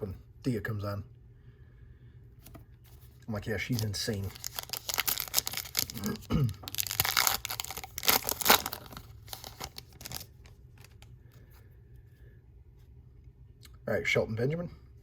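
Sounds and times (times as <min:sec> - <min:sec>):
plastic wrapper tearing and crinkling: 0:03.6 - 0:11.1.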